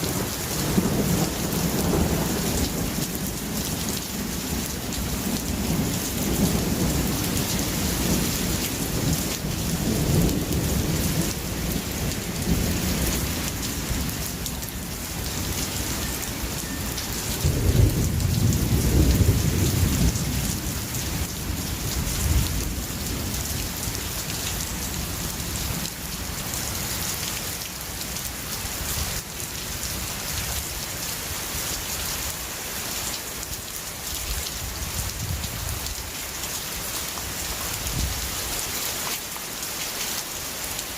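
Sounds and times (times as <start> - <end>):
heavy rain falling: 0.0 - 40.9
rolling thunder: 16.9 - 23.6.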